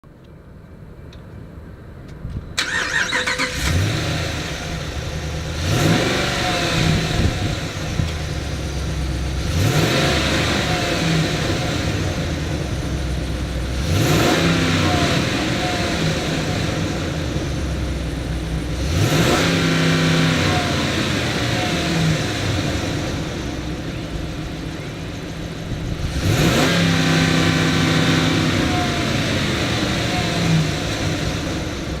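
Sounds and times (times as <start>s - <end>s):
pickup engine starting: 2.5s - 32.0s
engine idling and revving: 2.6s - 32.0s.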